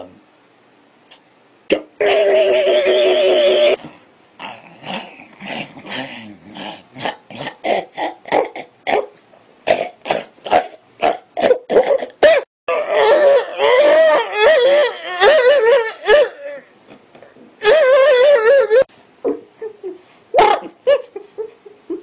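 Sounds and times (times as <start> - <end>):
man making throat bursts: 1.7 - 12.4.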